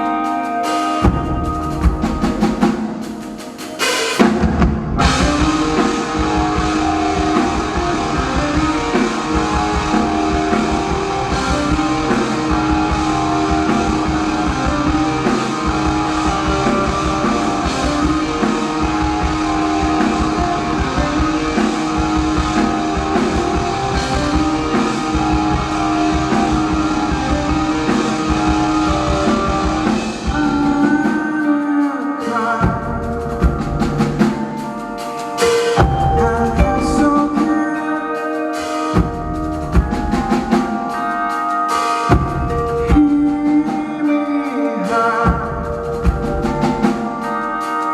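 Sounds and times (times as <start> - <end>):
held guitar notes: 0.0 - 47.9
rock band playing live: 0.0 - 47.9
hard drum hits: 1.0 - 30.6, 35.4 - 37.4.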